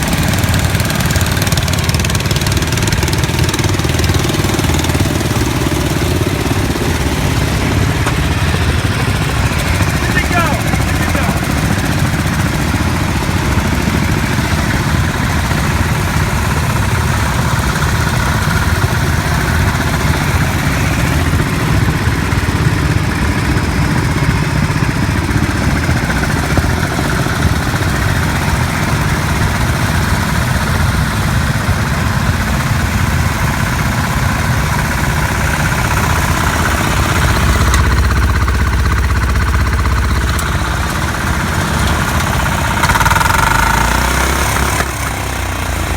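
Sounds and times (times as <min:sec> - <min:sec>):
garden tractor engine running: 0:00.0 - 0:45.9.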